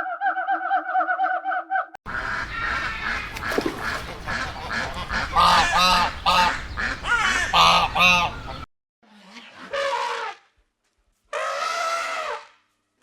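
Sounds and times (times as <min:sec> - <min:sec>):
geese honking: 0:00.4 - 0:08.7
other birds calling: 0:02.1 - 0:08.7.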